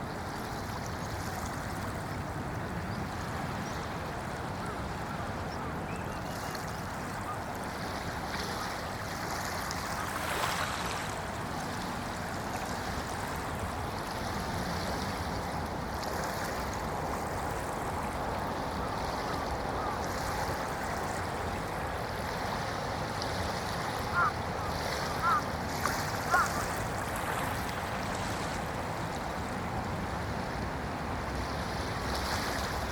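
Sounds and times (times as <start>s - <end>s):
small waves lapping on beach: 0.0s - 32.9s.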